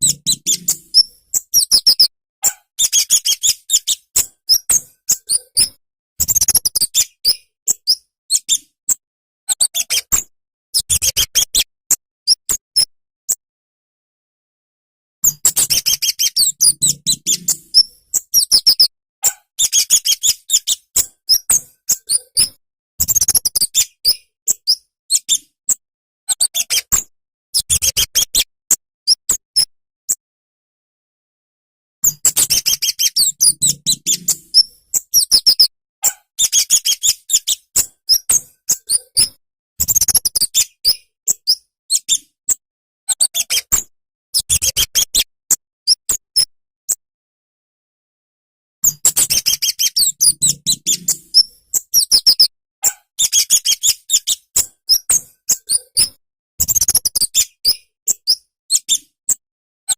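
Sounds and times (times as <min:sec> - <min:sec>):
bird twittering: 0:00.0 - 0:02.1, 0:15.2 - 0:18.9, 0:32.0 - 0:35.7, 0:48.8 - 0:52.5.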